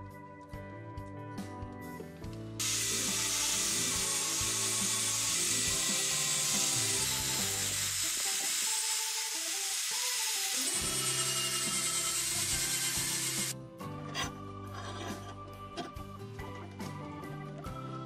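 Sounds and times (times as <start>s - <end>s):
angle grinder grinding steel: 2.6s - 15.9s.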